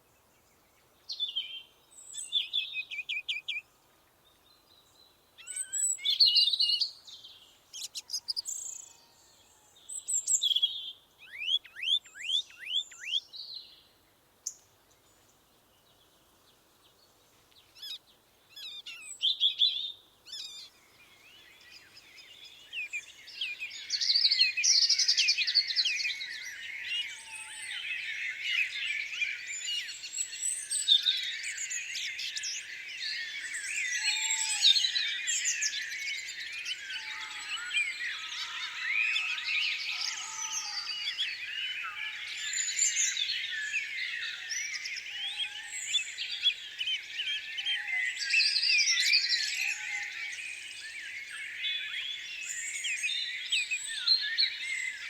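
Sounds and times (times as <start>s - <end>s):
songbirds chirping and singing: 0.1s - 55.0s.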